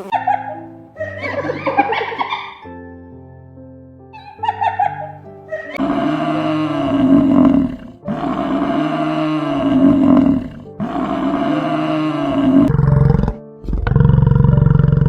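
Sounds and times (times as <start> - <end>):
big cat roaring: 5.8 - 15.0.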